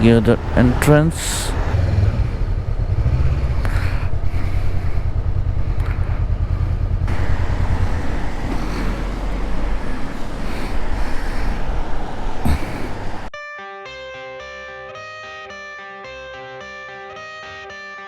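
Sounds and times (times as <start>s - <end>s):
motorcycle engine rumbling: 0.0s - 13.3s.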